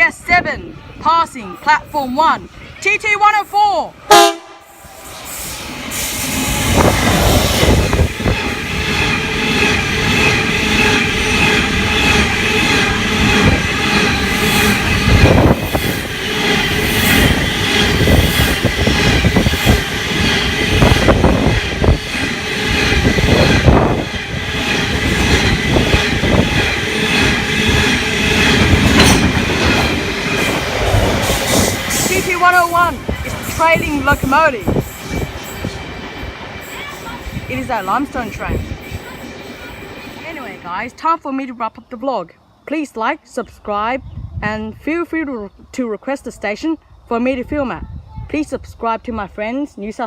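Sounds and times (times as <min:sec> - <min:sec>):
freight wagons rumbling: 0:05.4 - 0:41.0
wheels clacking over rail joints: 0:08.1 - 0:40.6.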